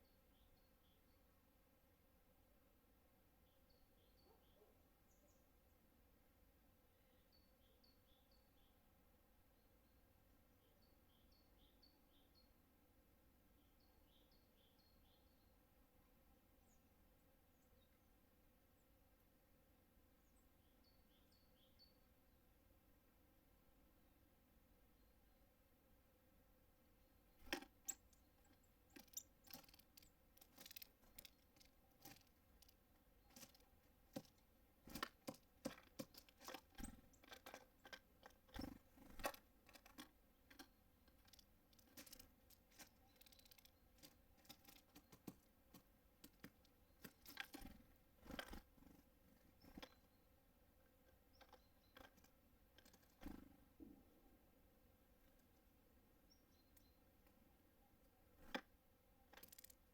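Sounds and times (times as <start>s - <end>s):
birds pecking at seeds: 27.3s - 50.1s, 50.9s - 53.6s, 58.3s - 59.9s.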